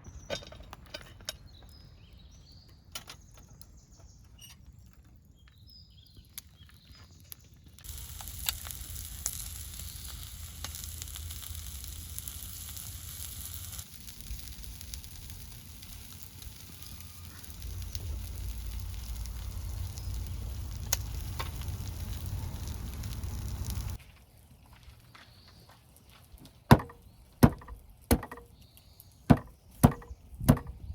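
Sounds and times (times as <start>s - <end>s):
campfire crackling and popping: 4.8s - 24.0s.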